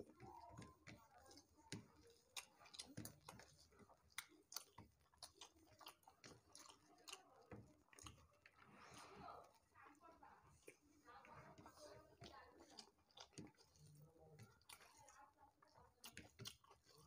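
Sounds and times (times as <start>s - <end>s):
people chewing food: 0.0s - 17.0s
wet mouth clicks: 16.0s - 17.0s.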